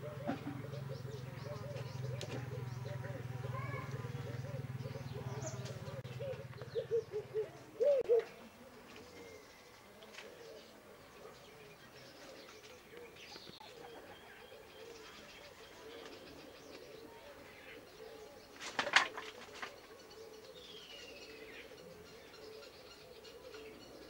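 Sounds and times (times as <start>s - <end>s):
high falling bird calls: 0.0s - 24.0s
low cooing murmur: 0.0s - 24.0s
wings fluttering: 18.5s - 19.9s.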